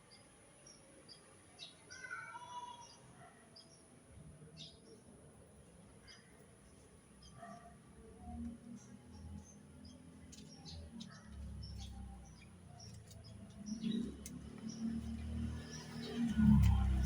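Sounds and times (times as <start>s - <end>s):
small birds chirping: 4.6s - 17.0s.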